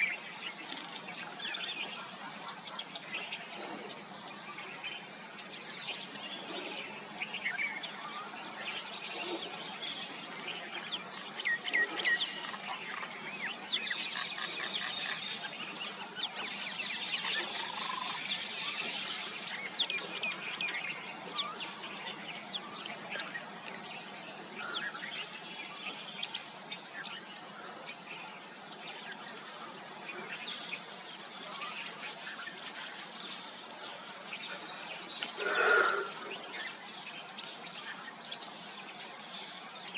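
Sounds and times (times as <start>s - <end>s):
mynas chirping and calling: 34.7s - 36.8s.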